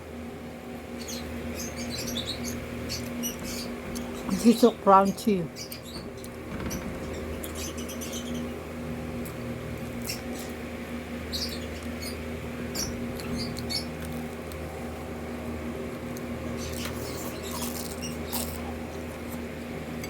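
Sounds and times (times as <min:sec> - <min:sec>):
steady low hum: 0:00.0 - 0:20.0
chewing crunchy fried food: 0:13.2 - 0:14.7, 0:16.1 - 0:19.5.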